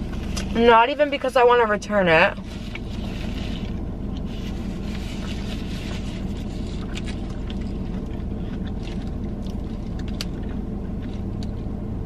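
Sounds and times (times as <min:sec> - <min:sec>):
car engine idling: 0:00.0 - 0:12.0
chewing: 0:02.4 - 0:11.7.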